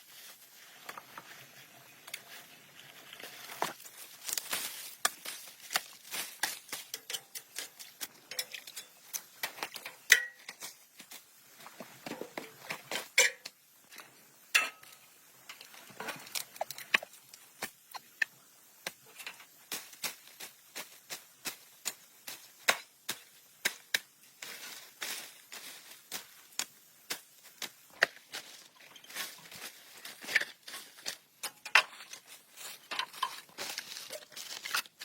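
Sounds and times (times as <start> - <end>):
small hard objects clicking: 4.3 - 10.7.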